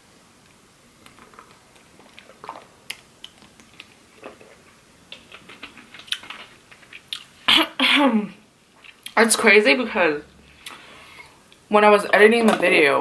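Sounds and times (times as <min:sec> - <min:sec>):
soft chewing: 0:00.4 - 0:07.5, 0:08.7 - 0:09.2
mouth clicks and smacks: 0:01.0 - 0:07.7.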